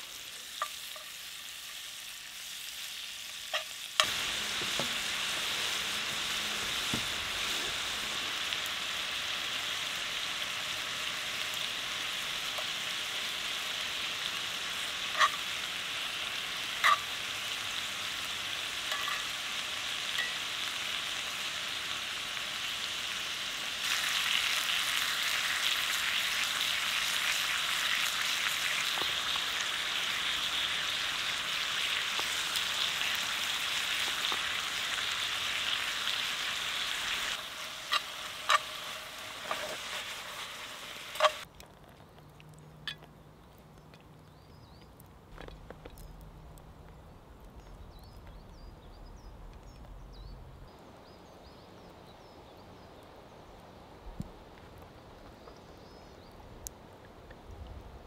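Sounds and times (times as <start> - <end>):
food sizzling in frying pan: 0.0 - 41.5.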